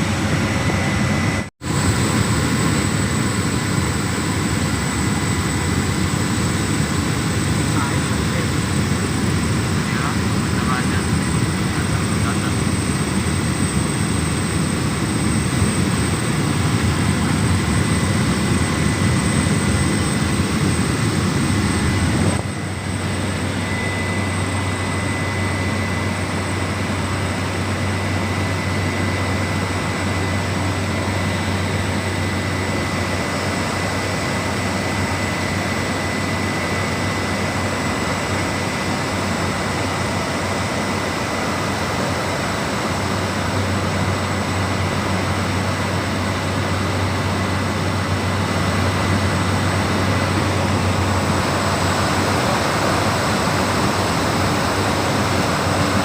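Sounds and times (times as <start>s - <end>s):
propeller aircraft engine in cabin: 0.0s - 56.0s
steady low hum: 0.0s - 56.0s.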